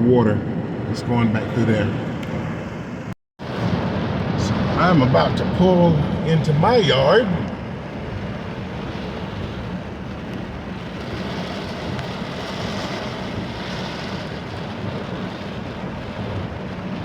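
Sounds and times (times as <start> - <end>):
car engine hum: 0.0 - 17.0
tyre noise on wet road: 3.4 - 17.0.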